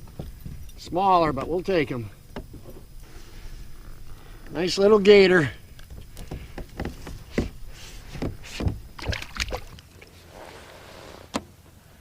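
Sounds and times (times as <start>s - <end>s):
knocks and taps on kayak hull: 5.8s - 9.6s.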